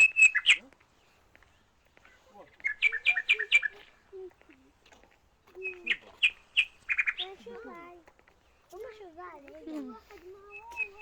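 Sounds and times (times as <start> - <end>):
bird chirping: 5.6 - 7.4.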